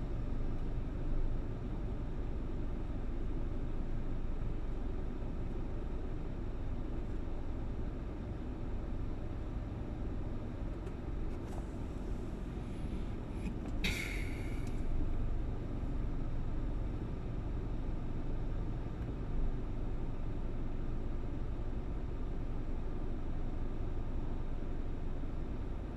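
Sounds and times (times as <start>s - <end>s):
car driving rumble: 0.0s - 25.9s
brief hiss or rattle: 13.8s - 14.6s.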